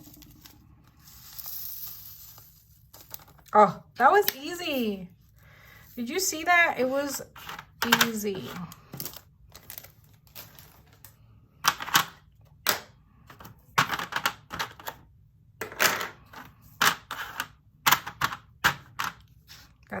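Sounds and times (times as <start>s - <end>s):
plastic containers clicking and rattling: 7.4s - 15.0s.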